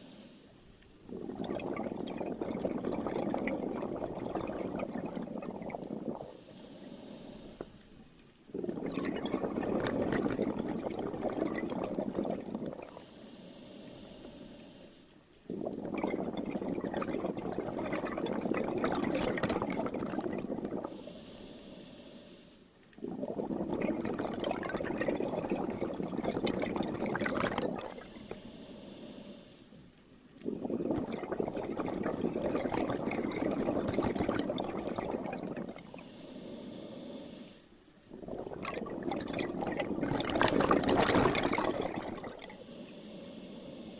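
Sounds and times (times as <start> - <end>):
regulator hissing inhalations: 0.0 - 0.6, 6.2 - 8.1, 12.6 - 15.2, 20.8 - 22.7, 27.7 - 29.9, 35.6 - 37.8, 42.3 - 43.9
exhaled bubbles rushing: 1.0 - 6.4, 8.4 - 13.0, 15.4 - 20.9, 23.0 - 28.1, 30.4 - 36.0, 38.0 - 42.6.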